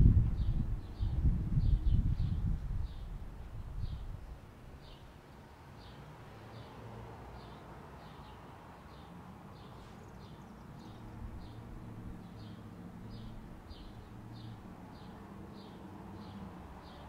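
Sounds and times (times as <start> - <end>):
small songbird chirping: 0.4 - 5.1, 5.8 - 6.8, 7.4 - 17.0.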